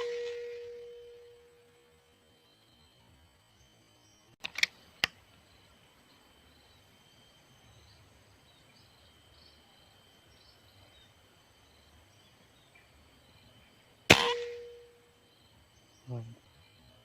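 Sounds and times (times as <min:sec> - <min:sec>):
air rifle shot: 0:00.0 - 0:01.2, 0:14.1 - 0:14.9
small birds chirping: 0:00.0 - 0:17.0.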